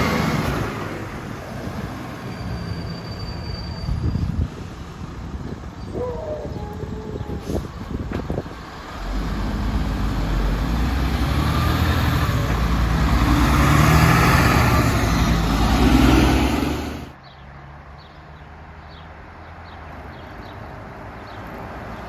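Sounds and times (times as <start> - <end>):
heavy truck passing: 0.0 - 5.8, 7.3 - 17.2.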